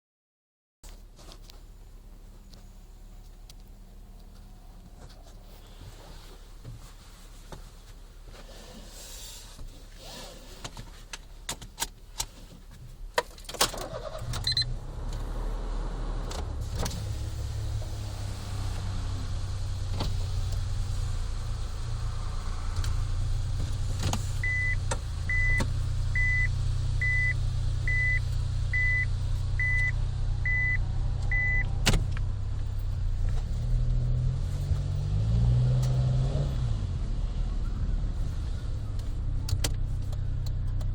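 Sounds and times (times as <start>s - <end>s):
car engine starting and idling: 0.9s - 40.9s
short electronic beeps: 24.4s - 25.6s, 26.2s - 31.6s.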